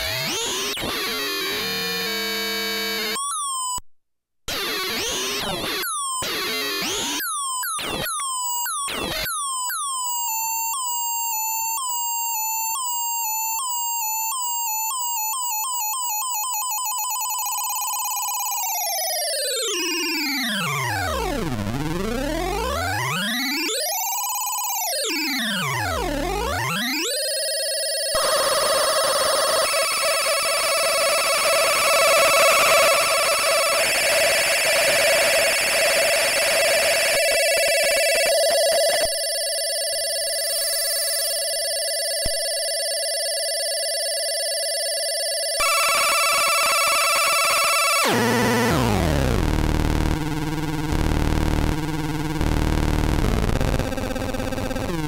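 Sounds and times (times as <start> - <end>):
warbling buzzy electronic tone: 28.2 - 39.8.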